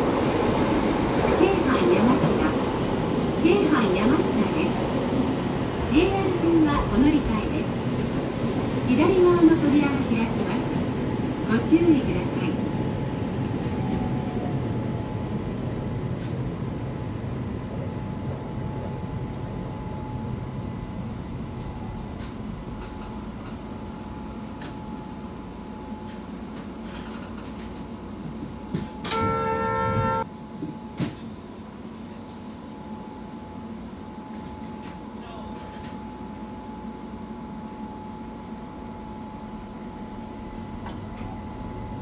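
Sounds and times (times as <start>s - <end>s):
train horn: 29.0s - 30.3s.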